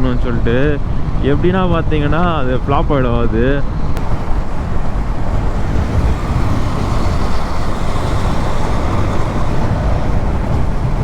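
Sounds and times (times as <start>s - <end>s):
road noise: 0.0s - 11.0s
wind rushing over microphone: 0.0s - 11.0s
motorcycle engine: 4.0s - 11.0s.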